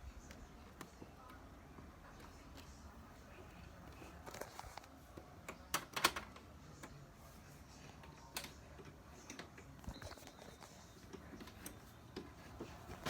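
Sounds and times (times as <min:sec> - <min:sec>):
air conditioner control clicks: 0:04.3 - 0:07.0, 0:07.9 - 0:13.0.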